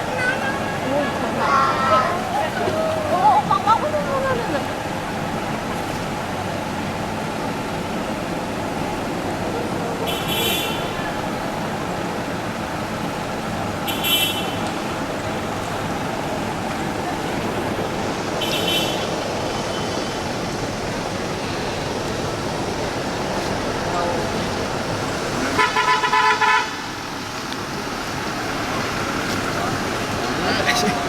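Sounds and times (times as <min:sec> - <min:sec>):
crowd noise: 0:00.0 - 0:13.8, 0:14.4 - 0:25.6, 0:26.8 - 0:31.0
traffic noise: 0:00.0 - 0:31.0
vehicle horn tooting: 0:10.0 - 0:11.1, 0:13.9 - 0:14.7, 0:18.4 - 0:19.1, 0:25.5 - 0:26.8.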